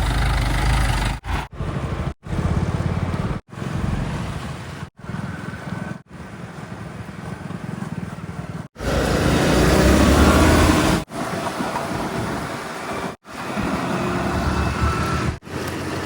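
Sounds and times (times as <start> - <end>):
heavy vehicle engine rumble: 8.8 - 16.0.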